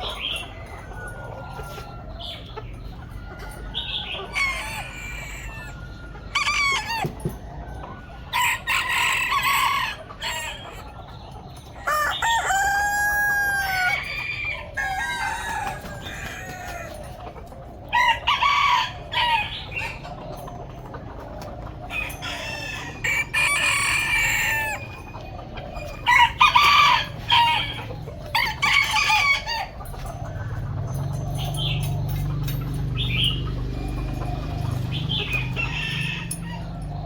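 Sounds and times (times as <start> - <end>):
chickens clucking and squawking: 0.0 - 37.0
rooster crowing: 3.4 - 7.2, 8.3 - 10.6, 11.8 - 17.1, 17.9 - 19.8, 21.9 - 30.1, 33.2 - 37.0.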